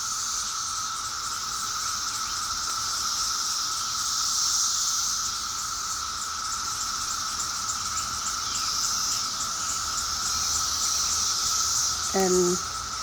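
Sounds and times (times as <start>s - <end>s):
crickets and insects chirping: 0.0s - 13.0s.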